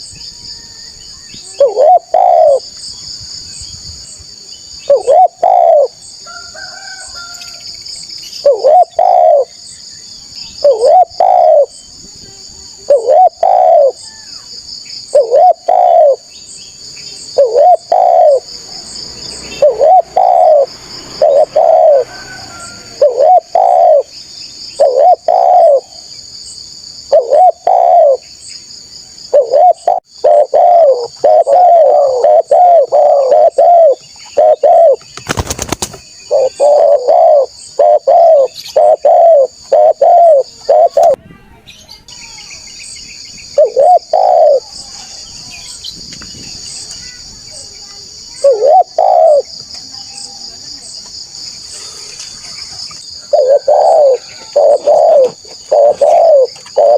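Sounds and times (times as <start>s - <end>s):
insects chirring: 0.0s - 56.9s
dove cooing: 1.4s - 2.6s, 4.8s - 6.0s, 8.4s - 9.5s, 10.6s - 11.8s, 12.8s - 14.0s, 15.1s - 16.3s, 17.3s - 18.6s, 19.5s - 24.1s, 24.8s - 26.1s, 27.0s - 28.2s, 29.3s - 35.5s, 36.3s - 41.2s, 43.6s - 44.8s, 48.3s - 49.6s, 53.1s - 56.9s.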